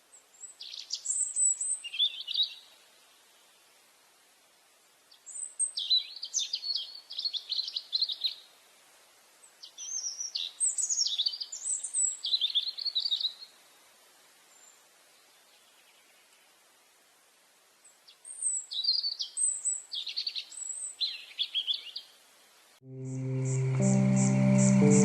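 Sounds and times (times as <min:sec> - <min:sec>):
songbird twittering: 0:23.0 - 0:25.0.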